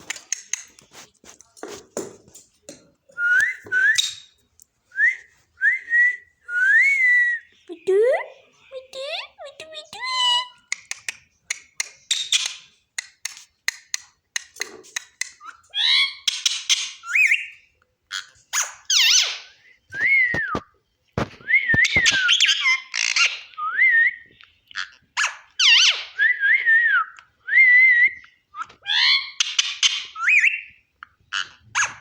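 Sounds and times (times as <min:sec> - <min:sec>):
parrot squawking: 0:18.2 - 0:19.5.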